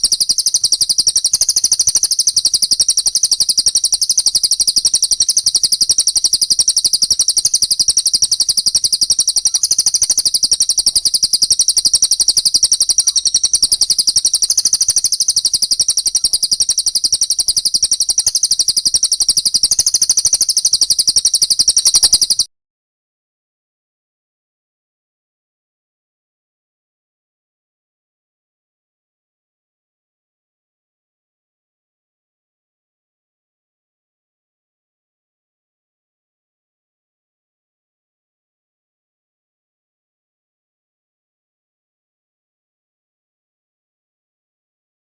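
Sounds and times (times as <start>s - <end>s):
rapid high-pitched bird chirps: 0.0s - 22.5s.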